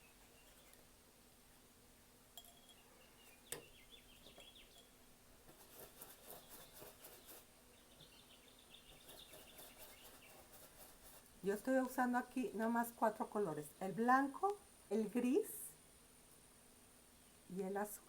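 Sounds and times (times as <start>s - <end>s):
faint bird chirps: 0.0s - 0.9s, 2.5s - 5.0s, 6.3s - 10.6s
soft repeated strokes: 0.0s - 1.1s, 5.3s - 12.7s.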